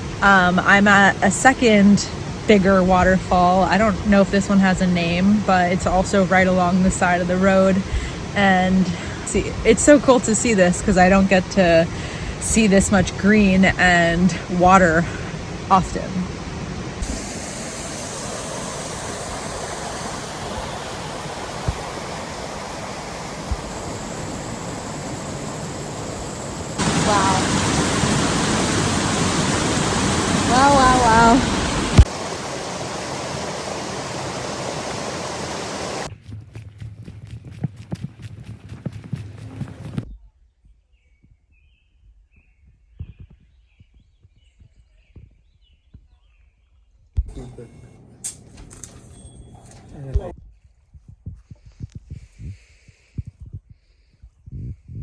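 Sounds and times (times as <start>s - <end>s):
loud noisy burst: 17.0s - 36.1s
waterfall rushing: 17.0s - 36.1s
faint birds chirping: 40.0s - 47.2s.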